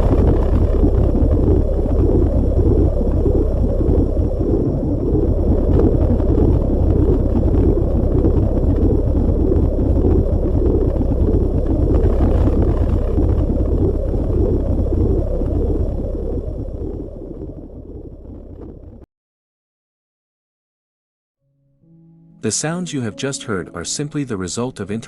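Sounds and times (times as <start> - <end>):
dense low noise: 0.0 - 19.0.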